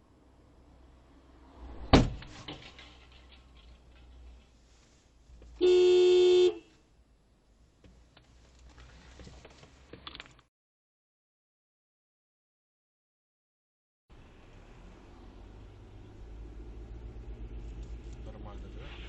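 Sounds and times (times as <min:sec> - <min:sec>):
low road rumble: 0:00.0 - 0:10.4, 0:14.1 - 0:19.0
car horn blast: 0:05.6 - 0:06.7.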